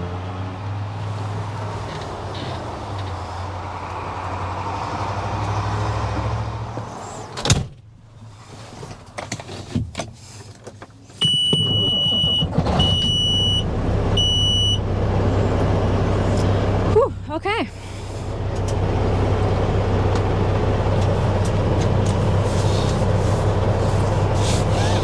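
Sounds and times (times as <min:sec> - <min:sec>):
truck engine idling: 0:11.0 - 0:25.0.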